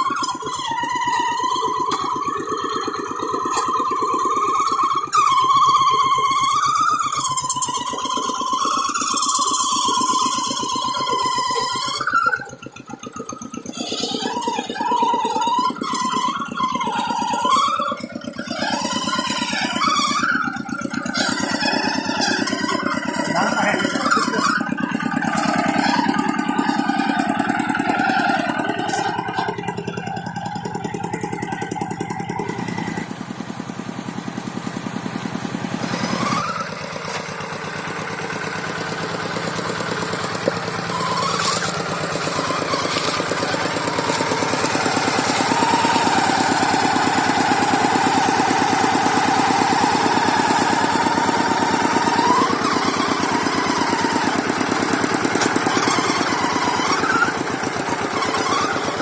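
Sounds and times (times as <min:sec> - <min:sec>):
tractor engine revving: 0:00.0 - 0:59.0.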